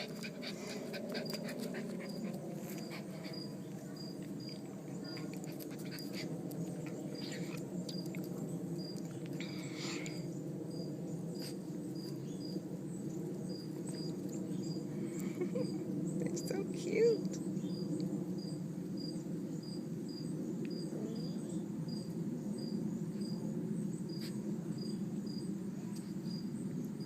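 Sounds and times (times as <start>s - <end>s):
dogs and puppies playing: 0.0s - 10.2s
steady low hum: 0.0s - 27.0s.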